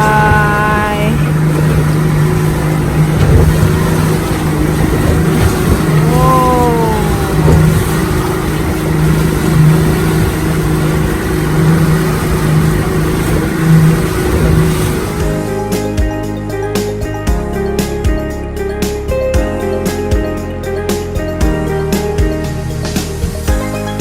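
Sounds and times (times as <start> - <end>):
rushing noise: 0.0 - 16.2
boat motor running: 0.0 - 24.0.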